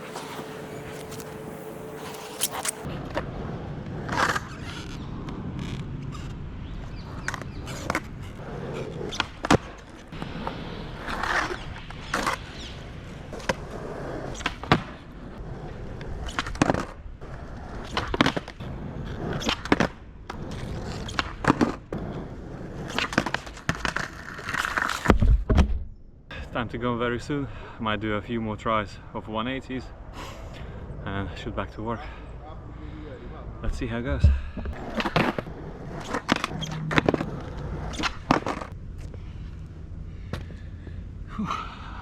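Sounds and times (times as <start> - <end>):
skateboard wheels rumbling: 0.0 - 25.5, 29.9 - 41.0
skateboard clacking on ground: 22.8 - 25.2.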